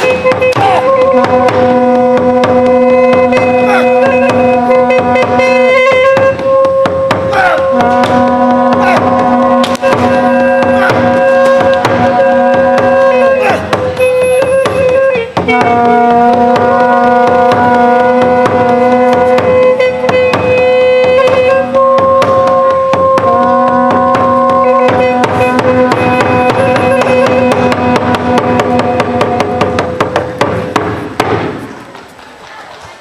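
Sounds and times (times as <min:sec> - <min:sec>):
wind instrument long notes: 0:00.0 - 0:30.8
fast drumming: 0:00.0 - 0:31.6.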